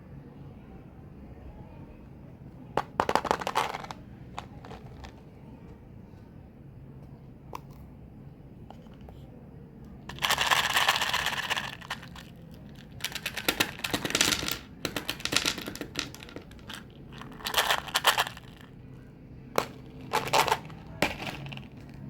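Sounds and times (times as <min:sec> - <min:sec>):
packaging clicking and crinkling: 0:10.1 - 0:18.7, 0:19.6 - 0:22.0.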